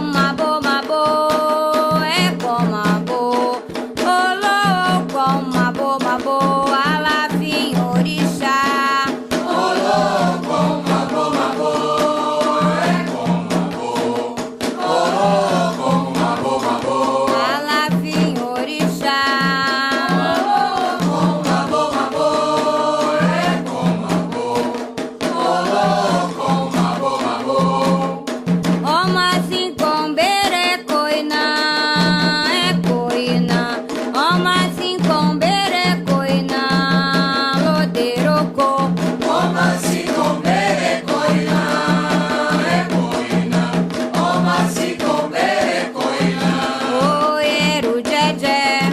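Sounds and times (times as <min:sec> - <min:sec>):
voices singing a chant: 0:00.0 - 0:03.6, 0:04.4 - 0:28.4, 0:38.8 - 0:48.9
drum and percussion rhythm: 0:00.0 - 0:48.9.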